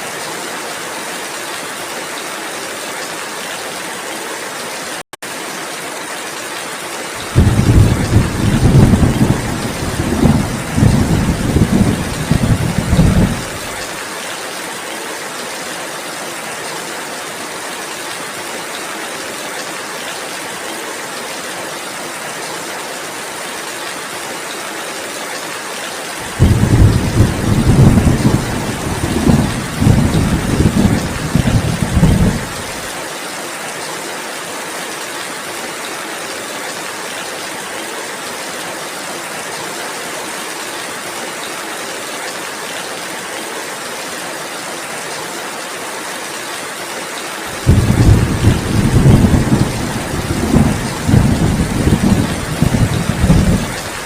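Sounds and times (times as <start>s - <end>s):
steady rainfall: 0.0s - 54.0s
rolling thunder: 7.2s - 13.7s, 26.2s - 32.8s, 47.6s - 54.0s.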